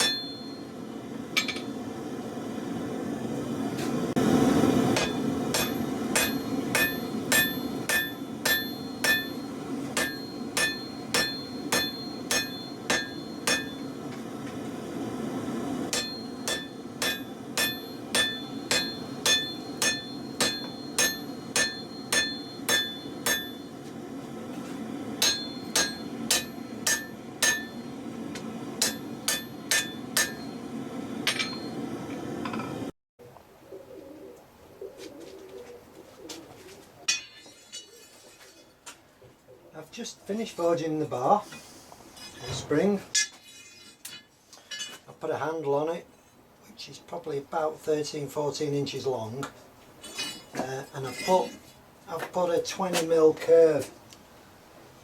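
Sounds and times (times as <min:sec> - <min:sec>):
hammer ringing on anvil: 0:00.0 - 0:00.7, 0:01.4 - 0:01.7, 0:05.0 - 0:14.0, 0:15.9 - 0:23.8, 0:25.2 - 0:28.0, 0:28.8 - 0:30.6, 0:31.3 - 0:31.8, 0:37.1 - 0:37.5.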